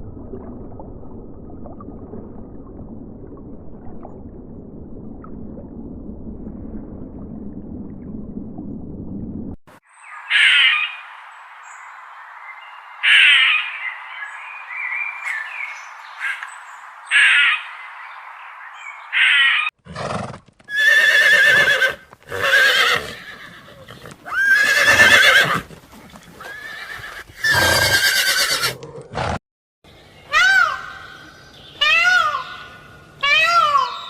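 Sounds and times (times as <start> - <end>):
horse neighing: 19.9 - 29.3.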